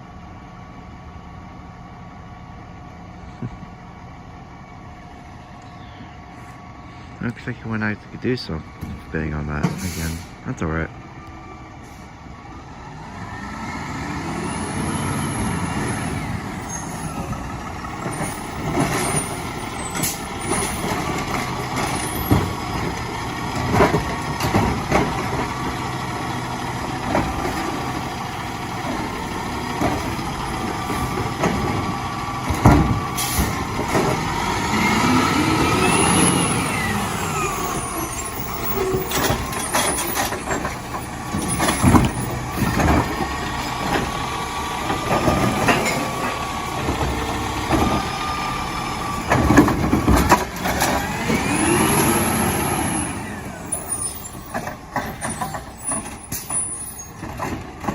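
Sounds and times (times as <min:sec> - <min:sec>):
truck engine revving: 0:12.1 - 0:57.9
clanks and knocks: 0:18.0 - 0:25.6, 0:28.8 - 0:34.3, 0:38.5 - 0:44.2, 0:44.8 - 0:48.1, 0:49.2 - 0:51.4, 0:54.3 - 0:57.9.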